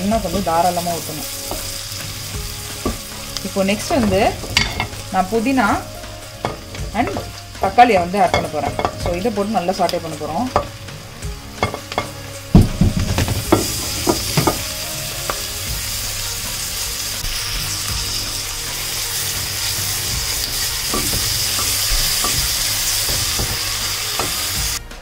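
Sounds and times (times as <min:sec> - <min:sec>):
food sizzling in hot oil: 0:00.0 - 0:24.8
spatula knocking and scraping pot: 0:08.4 - 0:09.3, 0:11.6 - 0:14.7, 0:20.1 - 0:24.7.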